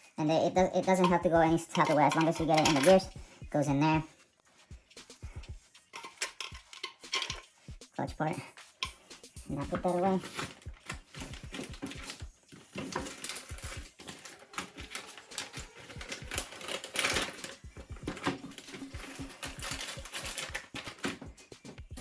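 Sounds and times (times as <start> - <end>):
metal parts clicking and clinking: 1.0 - 3.1, 5.9 - 7.5, 8.8 - 21.8.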